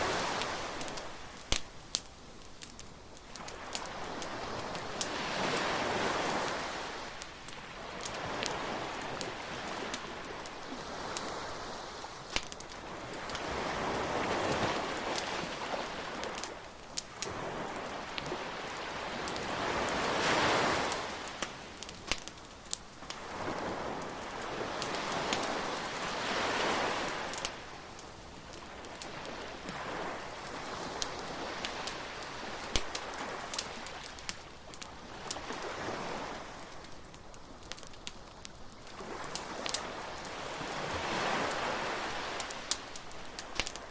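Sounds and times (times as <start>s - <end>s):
surf breaking on shore: 0.0s - 1.6s, 3.4s - 22.0s, 23.1s - 27.9s, 28.5s - 36.9s, 38.9s - 43.9s
bonfire crackling and popping: 0.0s - 43.9s.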